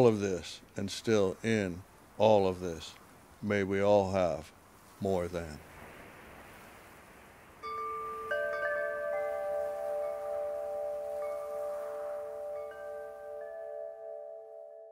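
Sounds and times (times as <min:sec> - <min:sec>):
faint steady hiss: 0:00.0 - 0:14.8
wind chimes ringing: 0:07.6 - 0:14.9.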